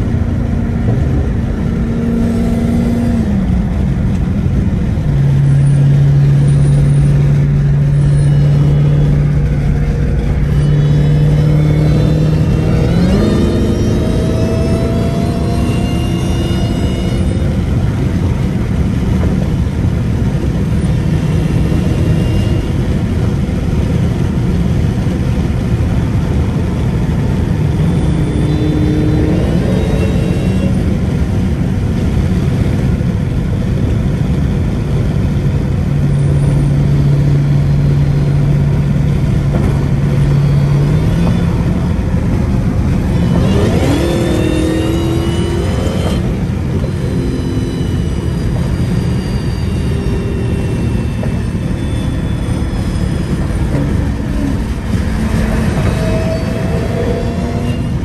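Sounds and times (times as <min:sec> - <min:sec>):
car engine drone: 0:00.0 - 0:58.0
road rumble: 0:00.0 - 0:58.0
engine revving up: 0:04.8 - 0:24.2, 0:26.6 - 0:31.4, 0:36.2 - 0:58.0.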